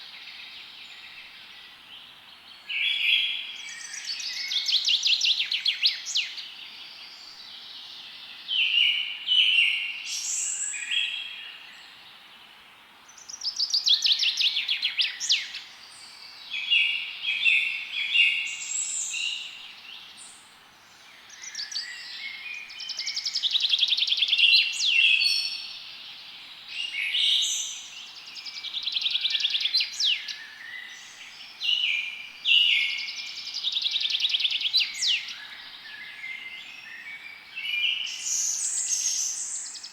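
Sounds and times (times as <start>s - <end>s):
songbirds singing: 0.0s - 39.9s
steady background hiss: 0.0s - 39.9s.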